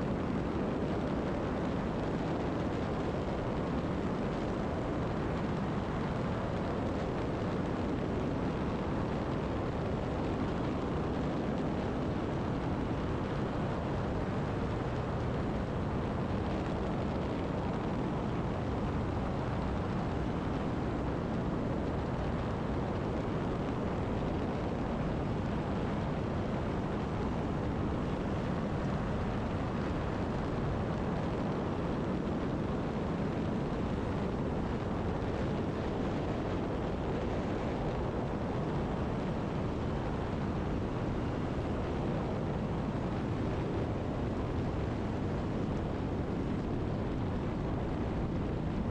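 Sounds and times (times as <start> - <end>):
light airplane engine droning: 0.0 - 48.9
wind noise: 0.0 - 48.9.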